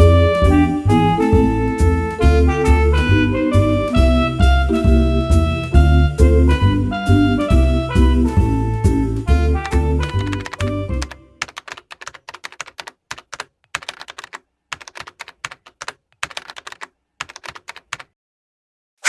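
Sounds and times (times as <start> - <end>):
jazz music: 0.0 - 11.4
keyboard keys clacking: 0.0 - 18.0.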